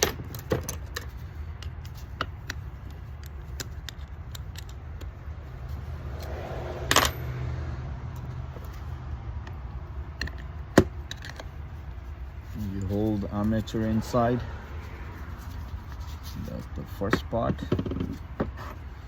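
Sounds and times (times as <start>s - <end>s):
metal parts clinking: 0.0s - 5.1s
metallic clatter: 0.0s - 7.4s.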